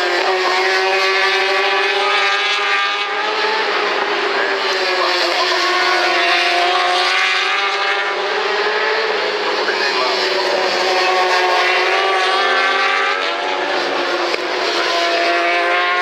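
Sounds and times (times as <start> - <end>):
racing motorcycle engines revving: 0.0 - 16.0.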